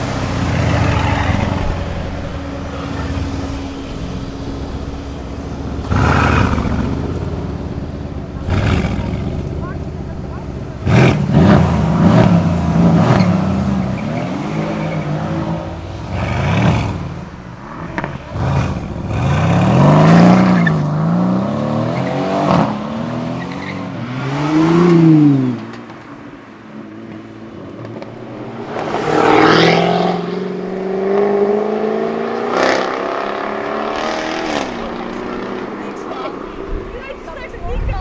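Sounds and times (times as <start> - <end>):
exhaust cracks: 0.0 - 20.8
car accelerating away: 0.0 - 37.9
car engines revving: 0.0 - 38.0.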